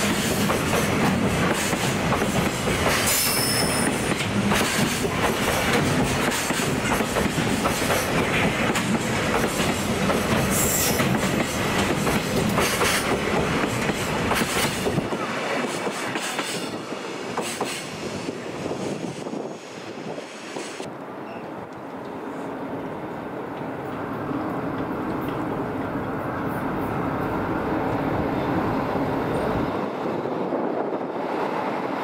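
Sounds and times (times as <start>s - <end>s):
freight train wheels clattering: 0.0s - 18.4s
high wheel squeal: 3.1s - 4.0s.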